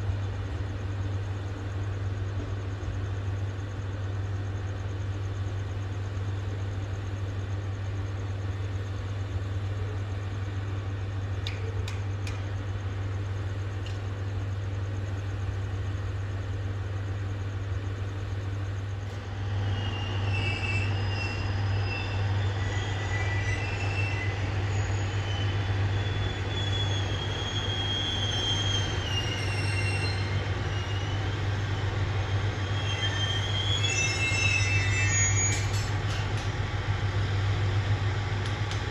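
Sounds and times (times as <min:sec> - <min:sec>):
railcar engine humming: 0:00.0 - 0:38.9
wheels squealing on rails: 0:19.1 - 0:38.9.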